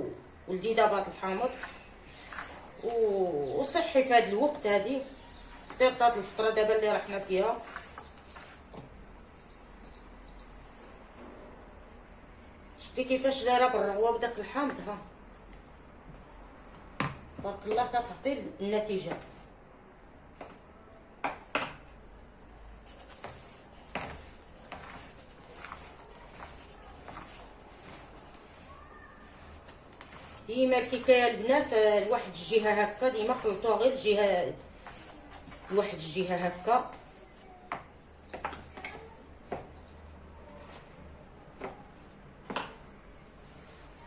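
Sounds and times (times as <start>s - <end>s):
faint stirring of batter: 1.0s - 2.9s, 4.1s - 9.2s, 22.0s - 42.2s.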